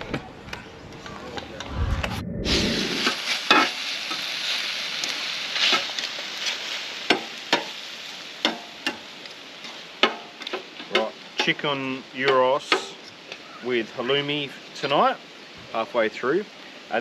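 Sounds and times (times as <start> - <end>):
chicken sizzling on a griddle: 3.0 - 17.0
metal tongs scraping a griddle: 5.6 - 7.7.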